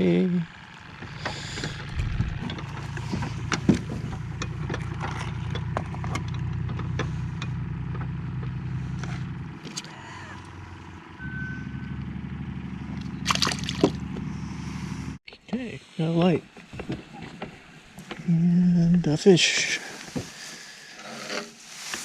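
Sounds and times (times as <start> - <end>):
engine humming: 0.0 - 15.2.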